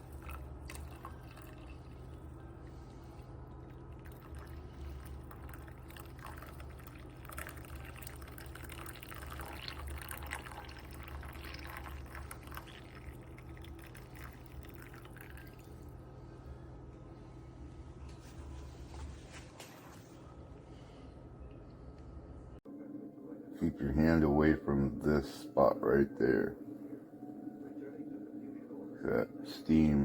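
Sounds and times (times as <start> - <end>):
coffee pouring into a cup: 0.0 - 16.0.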